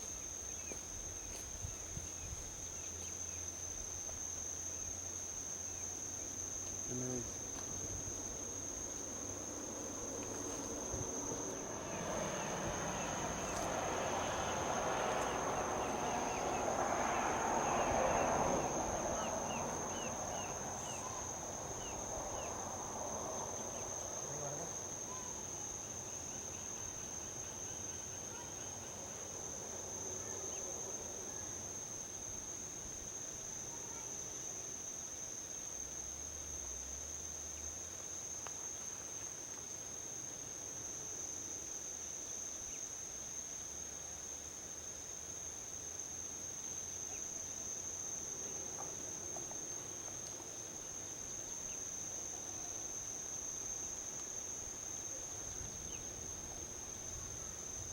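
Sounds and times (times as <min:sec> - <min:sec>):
high insect trill: 0:00.0 - 0:57.9
vehicle passing on highway: 0:07.8 - 0:25.1.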